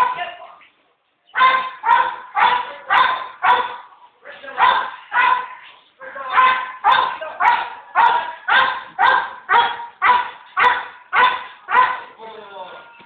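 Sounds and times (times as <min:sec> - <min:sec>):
dog barking: 0:01.4 - 0:03.9, 0:04.6 - 0:05.6, 0:06.3 - 0:12.1.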